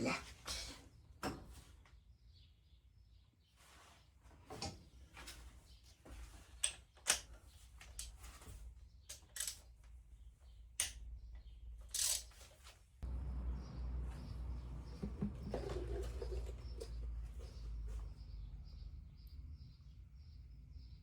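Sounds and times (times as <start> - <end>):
hand tools clicking on metal: 9.1 - 9.6, 10.8 - 11.1, 11.9 - 12.4.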